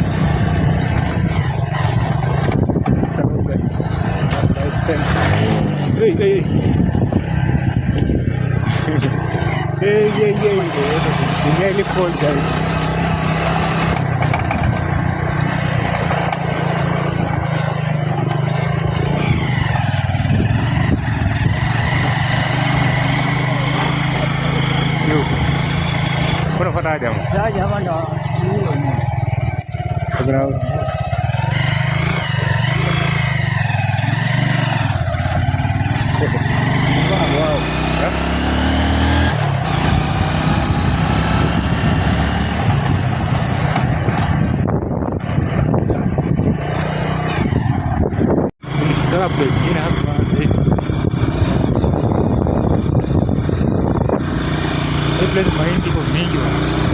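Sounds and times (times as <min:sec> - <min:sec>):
rough rumbling on microphone: 0:00.0 - 0:37.7, 0:39.3 - 0:56.9
motorbike engine running: 0:00.0 - 0:56.9
road noise: 0:00.0 - 0:56.9
wind noise: 0:00.0 - 0:56.9.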